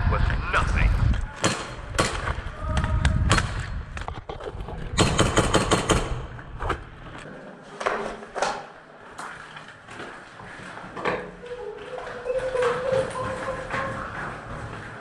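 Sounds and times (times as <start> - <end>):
airsoft guns firing: 5.0 - 6.4.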